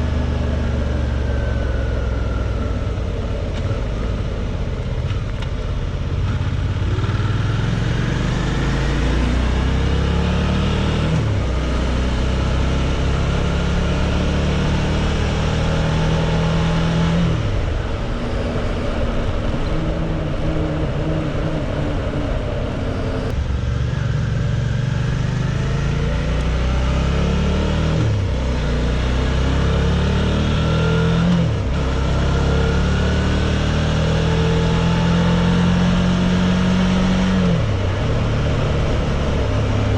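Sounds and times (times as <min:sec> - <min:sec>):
motorcycle engine shifting gears: 0:00.0 - 0:39.9
wind rush: 0:15.7 - 0:23.6.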